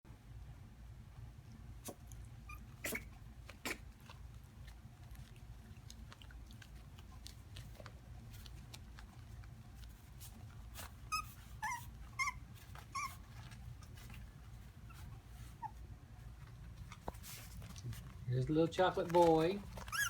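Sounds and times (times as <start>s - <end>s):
puppies whimpering: 11.1s - 14.0s, 19.8s - 20.0s.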